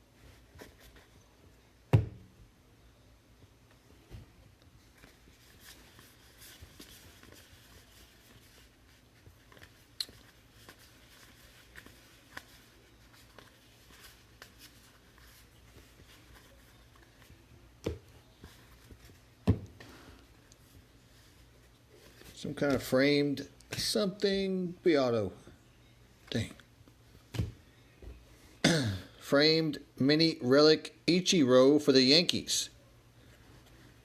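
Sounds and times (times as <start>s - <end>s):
low steady hum: 0.0s - 34.0s
cards rustling: 4.9s - 23.0s.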